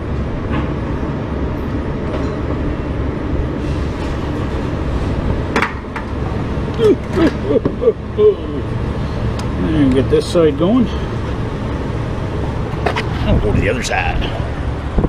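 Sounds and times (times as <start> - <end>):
truck engine running: 0.0 - 15.0
wind buffeting microphone: 11.1 - 15.0.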